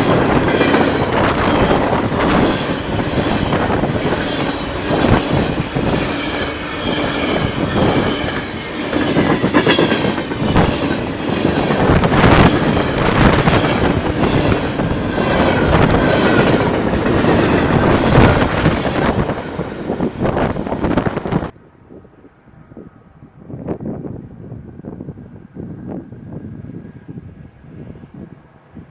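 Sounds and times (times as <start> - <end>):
wheels squealing on rail: 0.0 - 21.4
freight train cars rumbling: 0.0 - 28.9.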